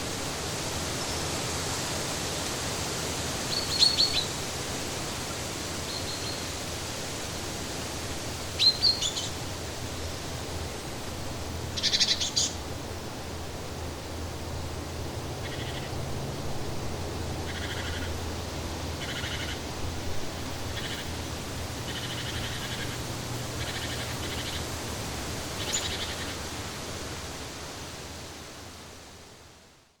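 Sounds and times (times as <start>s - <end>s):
steady rushing hiss: 0.0s - 30.0s
birds chirping and calling: 11.8s - 12.6s, 19.0s - 19.6s, 20.7s - 21.1s, 21.8s - 23.0s, 23.6s - 24.7s.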